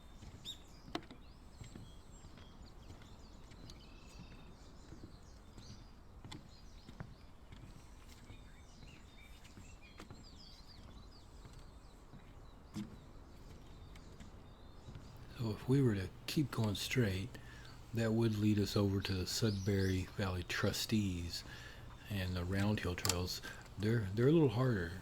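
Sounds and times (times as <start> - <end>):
low outdoor background: 0.0 - 25.0
small birds chirping: 0.0 - 25.0
sharp clicks: 15.2 - 25.0.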